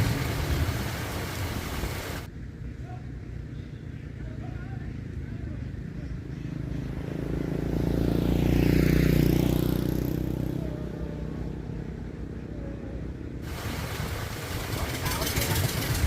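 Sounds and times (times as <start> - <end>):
vehicle passing by: 0.0 - 2.3, 4.2 - 16.0
wide hissing noise: 0.0 - 2.3, 13.4 - 16.0.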